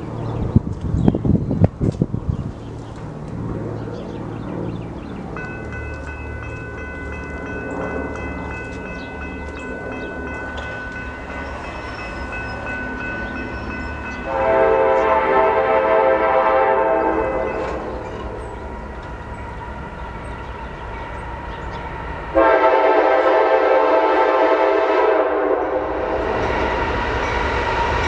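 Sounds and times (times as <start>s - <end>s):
diesel train rumbling: 0.0s - 28.0s
train air horn: 14.2s - 18.0s, 22.3s - 26.4s.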